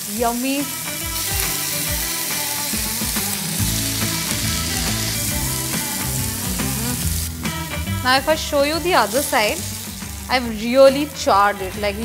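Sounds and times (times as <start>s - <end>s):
chicken sizzling on grill pan: 0.0s - 7.8s, 8.5s - 12.0s
background music: 0.0s - 12.0s
tongs turning meat: 1.2s - 7.3s.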